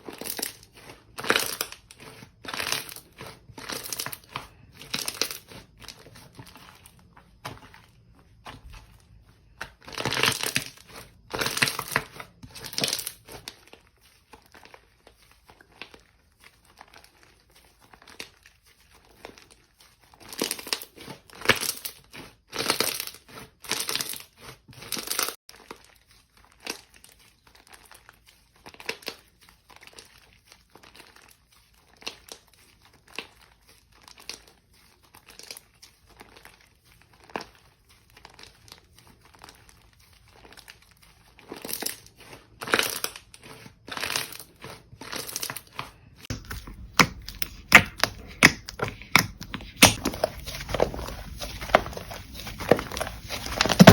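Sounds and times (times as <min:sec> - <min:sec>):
slime crackling and popping: 0:00.0 - 0:07.0, 0:09.6 - 0:19.6, 0:24.8 - 0:53.9.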